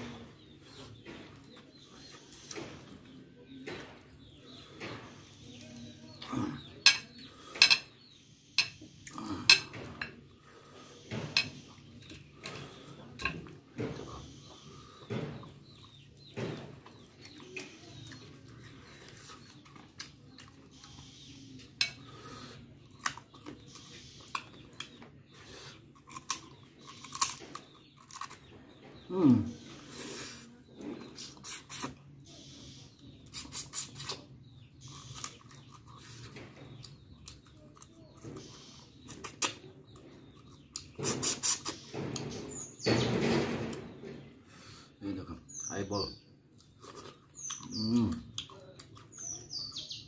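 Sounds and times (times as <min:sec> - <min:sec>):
chewing and crunching: 0:00.0 - 0:32.2, 0:32.9 - 0:42.9, 0:46.4 - 0:50.0.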